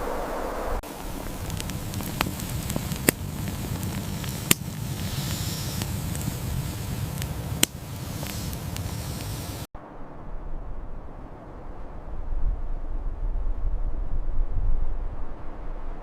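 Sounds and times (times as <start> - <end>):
fire crackling and popping: 0.8 - 9.7.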